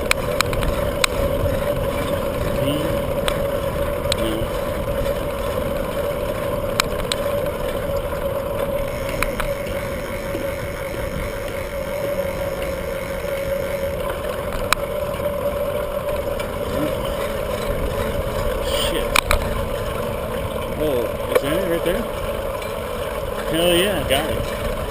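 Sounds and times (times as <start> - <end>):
wind rushing over microphone: 0.0 - 12.4
steady hum: 0.0 - 24.9
tyre and road rumble: 0.0 - 24.9.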